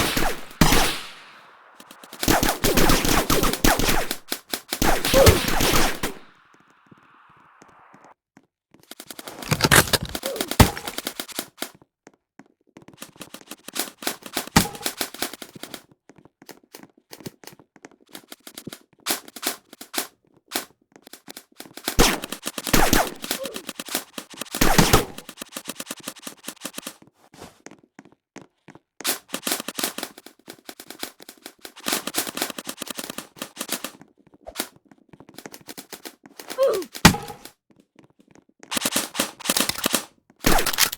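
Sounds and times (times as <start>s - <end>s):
airsoft guns firing in bursts: 0.0s - 7.0s, 9.4s - 11.4s, 13.7s - 15.4s, 21.9s - 26.9s, 31.8s - 33.9s, 38.7s - 40.9s.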